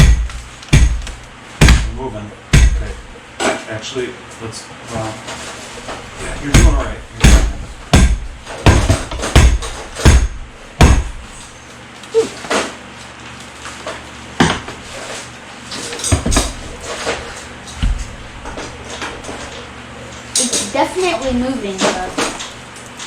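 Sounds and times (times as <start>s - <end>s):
mallet striking metal part: 0.0s - 3.0s, 6.5s - 11.2s.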